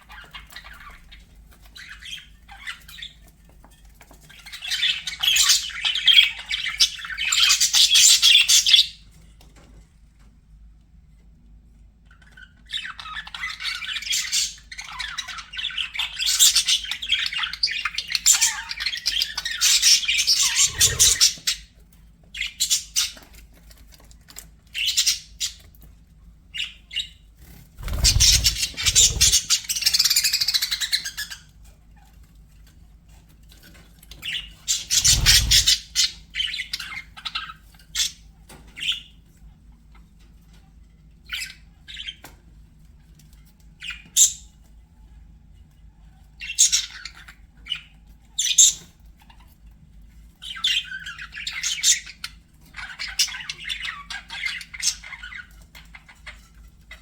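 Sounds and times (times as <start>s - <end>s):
budgerigars chattering and warbling: 0.0s - 3.2s, 12.2s - 21.8s, 26.6s - 31.5s, 34.2s - 39.1s, 46.4s - 49.4s.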